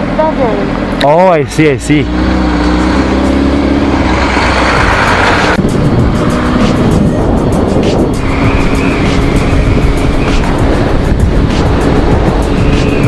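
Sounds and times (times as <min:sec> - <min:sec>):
motorcycle engine running: 0:00.0 - 0:13.0
wind and road noise: 0:00.0 - 0:13.0
background music with a beat: 0:05.6 - 0:13.0.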